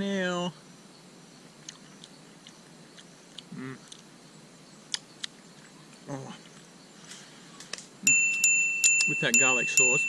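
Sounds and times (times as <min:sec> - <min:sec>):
man chewing: 0:01.6 - 0:04.1
mouth clicks: 0:01.6 - 0:04.1
closed-mouth hums: 0:03.4 - 0:04.0.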